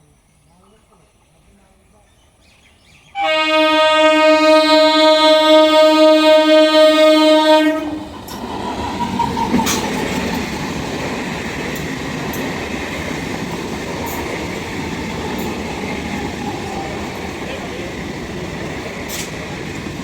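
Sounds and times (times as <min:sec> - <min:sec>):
train wheels rumbling on rails: 0:00.6 - 0:20.0
train horn blast: 0:03.2 - 0:08.1.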